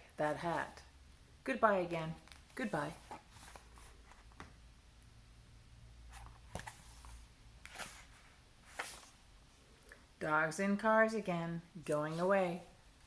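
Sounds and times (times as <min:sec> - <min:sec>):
low room hum: 0:00.0 - 0:13.0
book pages rustling: 0:02.2 - 0:04.6, 0:06.1 - 0:09.2.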